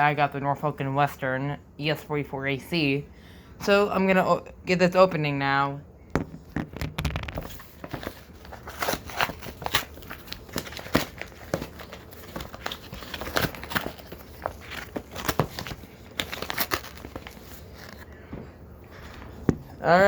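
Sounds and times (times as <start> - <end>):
packaging crinkling and tearing: 6.9 - 18.2.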